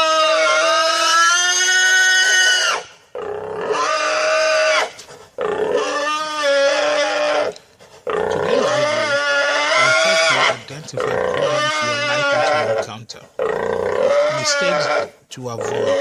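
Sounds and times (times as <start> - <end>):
pigs squealing: 0.0 - 16.0.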